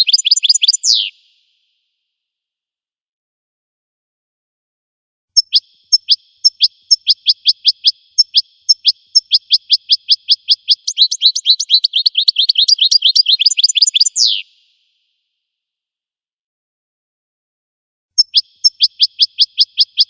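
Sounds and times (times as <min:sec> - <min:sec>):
songbird singing trill: 0:00.0 - 0:01.4, 0:05.4 - 0:14.8, 0:18.2 - 0:20.0.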